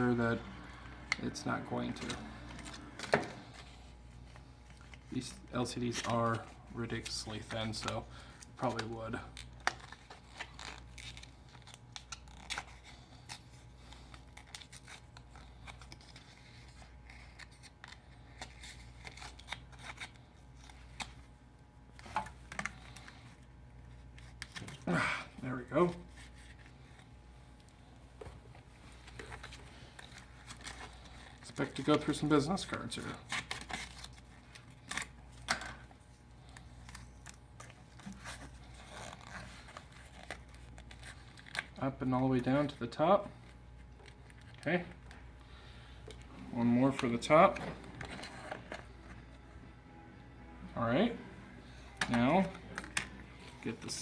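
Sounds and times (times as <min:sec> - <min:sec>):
card scraping and clicking: 0:00.0 - 0:05.1, 0:51.8 - 0:54.0
low steady hum: 0:00.0 - 0:54.0.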